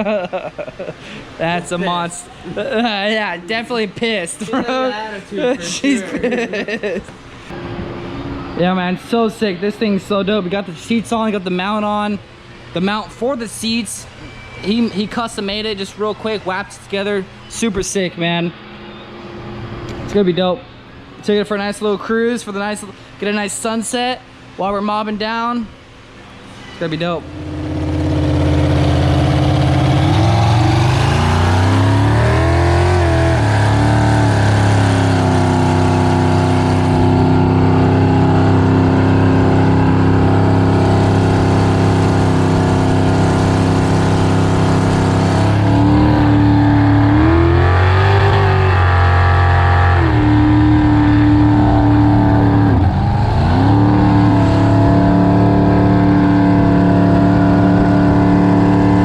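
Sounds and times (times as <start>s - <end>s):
jet boat engine running: 27.2s - 59.0s.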